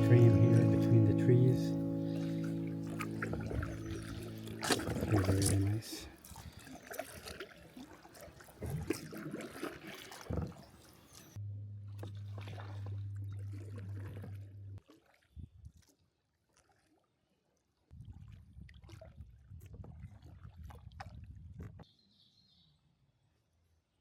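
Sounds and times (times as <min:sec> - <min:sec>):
water dripping and splashing from paddle: 0:02.1 - 0:11.4, 0:12.0 - 0:21.9
steady low hum: 0:11.4 - 0:14.8.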